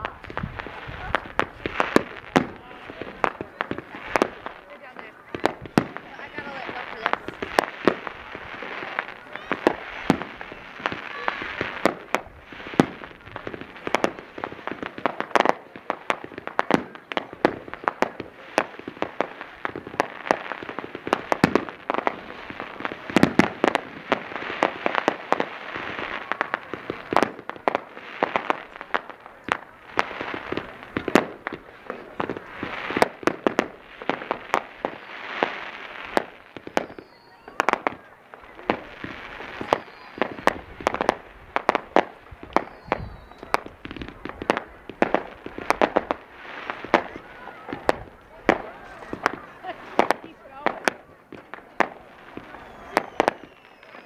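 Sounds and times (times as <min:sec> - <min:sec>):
fireworks bangs and cracks: 0:00.0 - 0:54.0.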